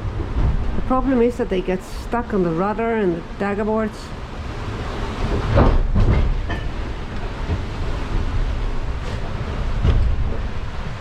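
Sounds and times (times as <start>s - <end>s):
wind: 0.0s - 11.0s
loud knocks: 5.2s - 8.3s, 9.0s - 10.7s.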